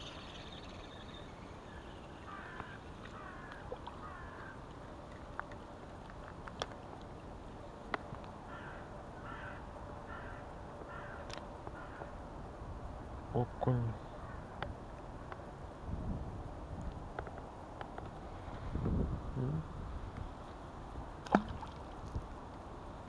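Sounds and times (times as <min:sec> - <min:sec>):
bird calling: 0:00.0 - 0:04.7, 0:08.5 - 0:12.2
steady background hiss: 0:00.0 - 0:23.0.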